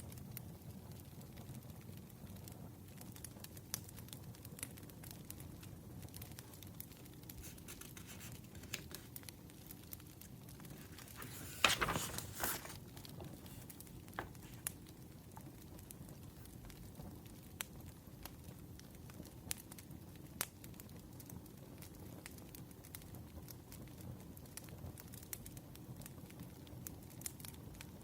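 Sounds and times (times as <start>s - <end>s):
wood fire crackling: 2.9s - 28.0s
paper rustling: 6.4s - 9.3s, 10.2s - 14.8s.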